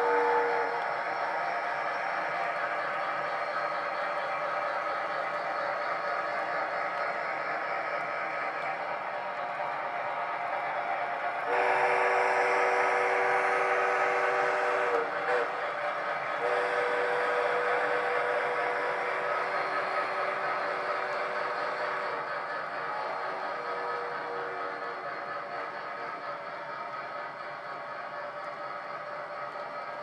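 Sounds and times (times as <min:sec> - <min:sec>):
model train steam whistle: 0:00.0 - 0:04.2, 0:11.4 - 0:25.8
model trains running on track: 0:00.0 - 0:30.0.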